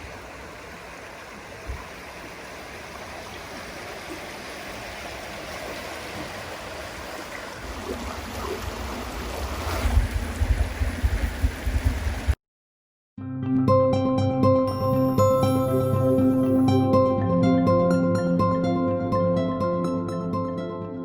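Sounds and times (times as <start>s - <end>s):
running water rushing: 0.0s - 12.4s
low rumble: 9.1s - 12.4s.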